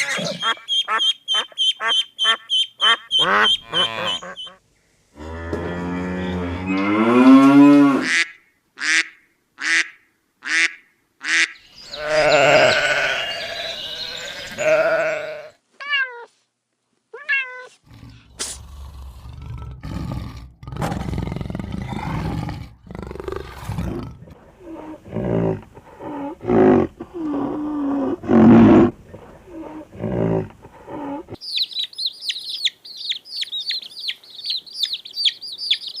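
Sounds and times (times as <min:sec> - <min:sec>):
small bird chirping rapidly: 0:00.4 - 0:04.6, 0:11.5 - 0:14.6, 0:31.4 - 0:36.0
large animal roaring and growling: 0:17.9 - 0:31.4.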